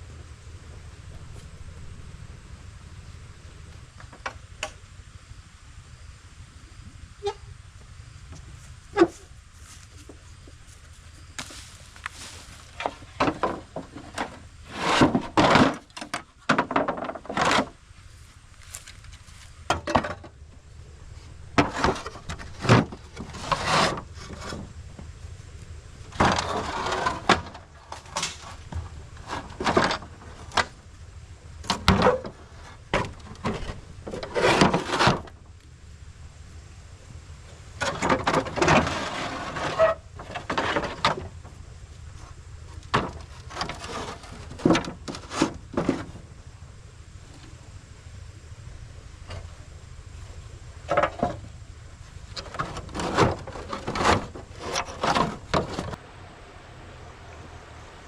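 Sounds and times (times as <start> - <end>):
wood knocking and clattering: 12.8 - 17.7, 42.9 - 46.2.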